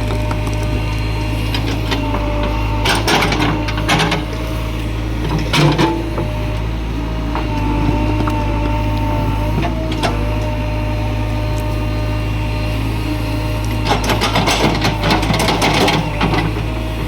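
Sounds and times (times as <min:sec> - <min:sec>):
diesel engine running: 0:00.0 - 0:17.0
hydraulic whine: 0:00.0 - 0:17.0
digging clatter: 0:01.5 - 0:10.5, 0:13.5 - 0:17.0.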